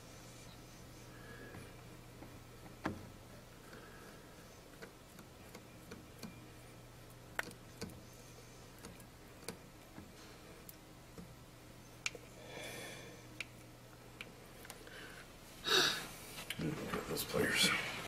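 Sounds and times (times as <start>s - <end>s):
low steady hum: 0.0s - 18.0s
small clicks of nuts and washers: 7.3s - 8.0s.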